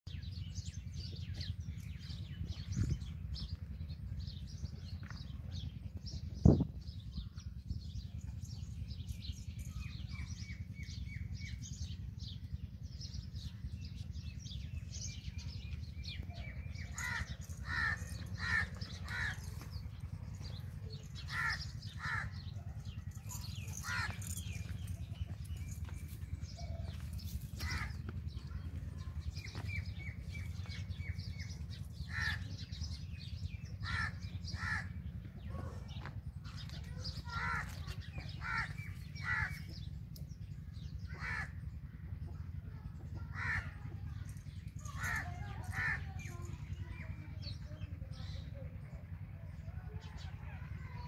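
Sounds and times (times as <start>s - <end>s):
birds chirping and calling: 0.1s - 51.0s
loud repeated bird calls: 16.4s - 25.0s, 29.5s - 33.0s, 33.7s - 40.0s.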